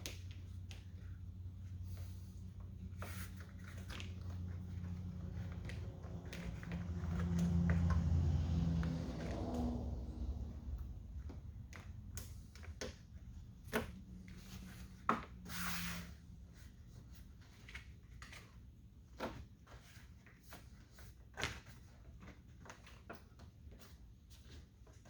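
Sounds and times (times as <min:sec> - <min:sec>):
short scrape: 0:15.4 - 0:16.2.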